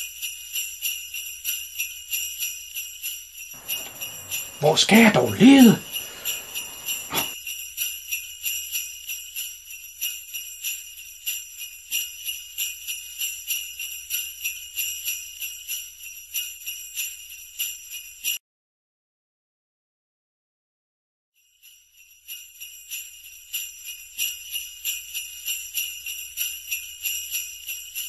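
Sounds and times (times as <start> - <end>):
sleigh bells jingling: 2.8 - 7.4, 21.4 - 28.0.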